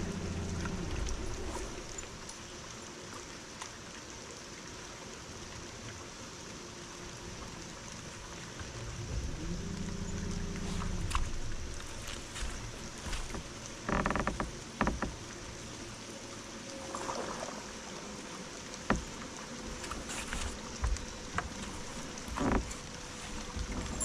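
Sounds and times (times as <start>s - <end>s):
faint hum: 0.0s - 2.5s, 7.0s - 14.5s
water noise: 0.0s - 24.0s
wind: 0.0s - 24.0s.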